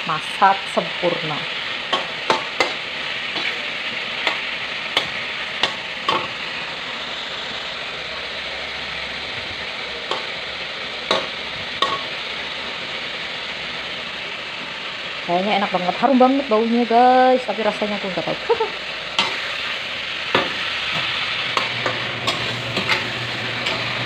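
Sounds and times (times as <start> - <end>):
food sizzling in a wok: 0.0 - 24.0
metal spatula scraping a wok: 1.6 - 6.6, 19.1 - 24.0.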